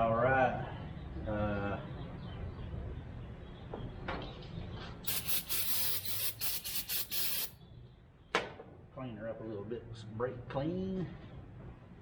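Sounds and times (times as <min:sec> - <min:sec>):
aerosol spray hissing bursts: 0:05.1 - 0:07.6.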